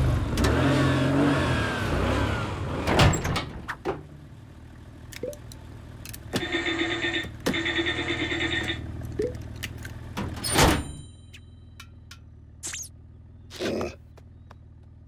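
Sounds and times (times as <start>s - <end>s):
cartoon car engine idling: 4.2s - 10.2s.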